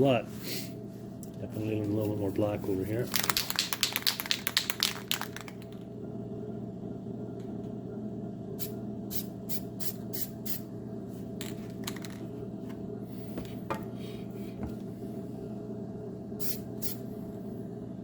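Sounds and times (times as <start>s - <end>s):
low hum: 0.0s - 18.0s
spray can hissing: 16.4s - 17.0s.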